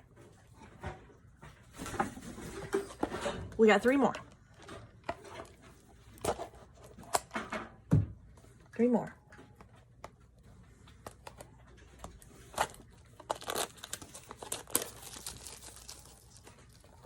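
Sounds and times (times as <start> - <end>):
packaging crinkling and tearing: 10.9 - 17.0.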